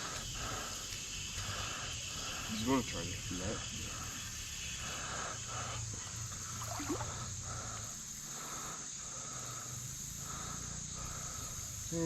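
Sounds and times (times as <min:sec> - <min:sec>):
insects droning and chirping: 0:00.0 - 0:12.0
creek water rushing: 0:06.4 - 0:07.6.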